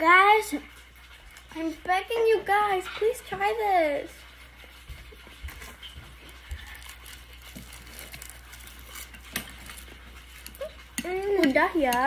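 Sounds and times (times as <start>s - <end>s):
chewing and mouth sounds: 4.9s - 11.5s.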